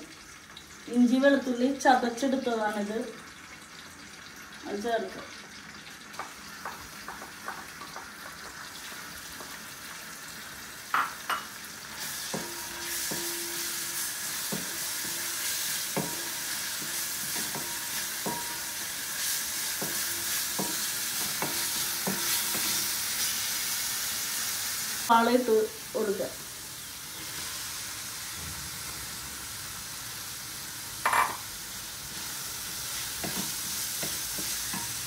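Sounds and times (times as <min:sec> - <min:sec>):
sizzling in hot oil: 0:00.0 - 0:35.0
spoon knocking against pan: 0:06.2 - 0:08.6, 0:10.9 - 0:11.5, 0:12.3 - 0:13.6, 0:15.9 - 0:18.8, 0:19.7 - 0:22.7, 0:31.0 - 0:31.4.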